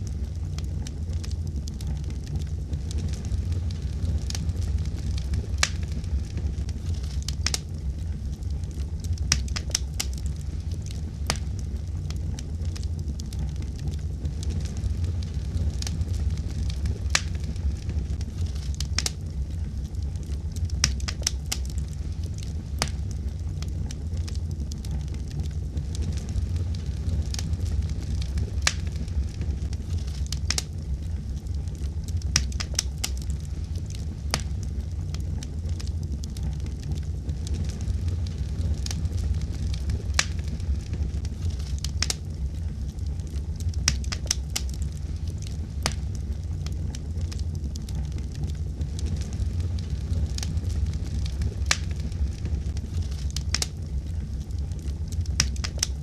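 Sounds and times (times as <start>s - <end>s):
wood fire burning: 0.0s - 56.0s.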